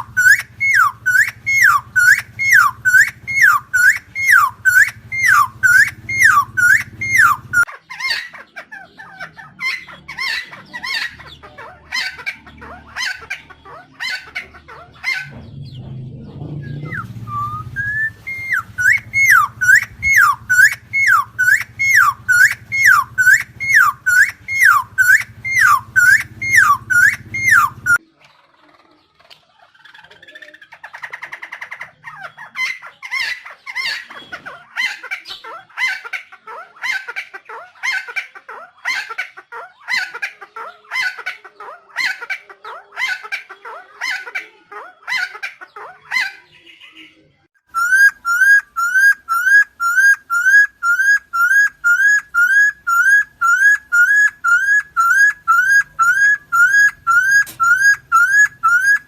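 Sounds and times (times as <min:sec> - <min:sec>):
bird calling loud repeated note: 0:00.0 - 0:07.7, 0:16.6 - 0:28.0, 0:47.7 - 0:59.0.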